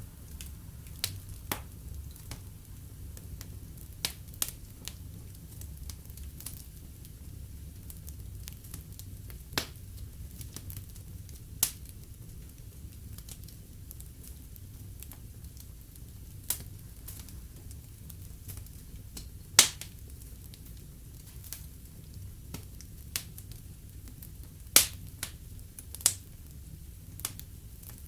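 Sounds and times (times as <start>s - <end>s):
low rumble of flames: 0.0s - 28.0s
wood fire crackling: 0.0s - 28.0s
sharp fire pops: 0.2s - 2.5s, 18.4s - 20.6s, 22.5s - 26.3s.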